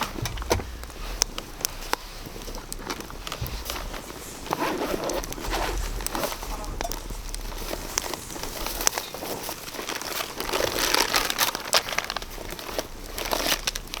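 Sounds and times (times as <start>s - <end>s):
sharp plastic clicks: 0.0s - 4.0s
plastic packaging crinkling: 0.0s - 14.0s.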